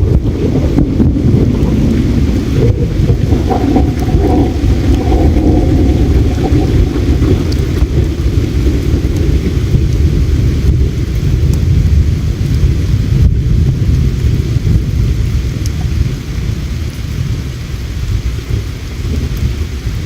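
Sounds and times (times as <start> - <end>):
river water flowing: 0.0 - 10.6
campfire crackling: 0.0 - 20.0.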